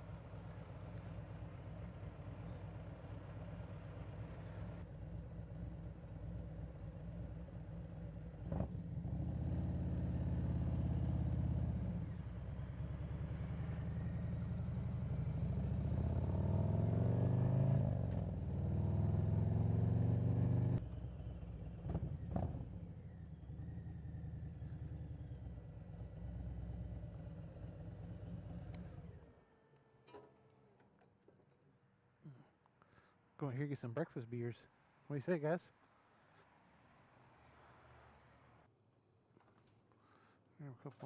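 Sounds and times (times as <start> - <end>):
motorcycle engine revving: 8.4 - 29.2.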